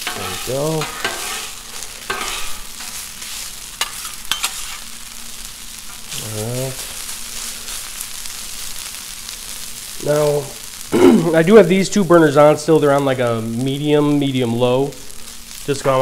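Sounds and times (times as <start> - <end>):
metal spatulas scraping: 0.0 - 3.0, 3.8 - 4.8
hash browns sizzling on griddle: 0.0 - 16.0.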